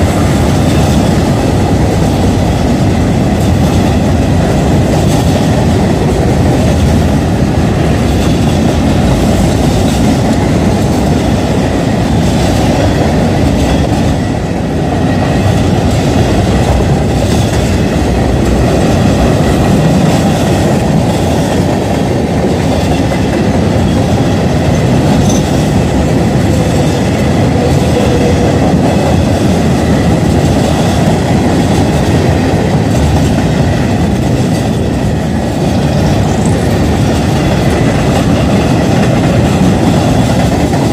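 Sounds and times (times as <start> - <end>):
freight train rolling on rails: 0.0 - 40.9.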